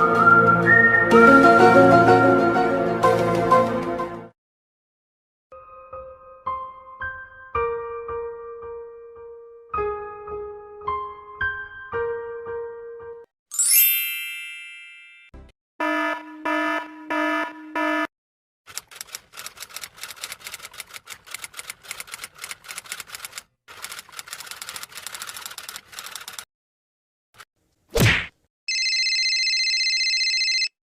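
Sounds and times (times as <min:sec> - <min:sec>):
piano tune: 0:05.5 - 0:14.8
sparkling chime flourish: 0:13.5 - 0:15.3
fast irregular clicking: 0:18.7 - 0:26.4.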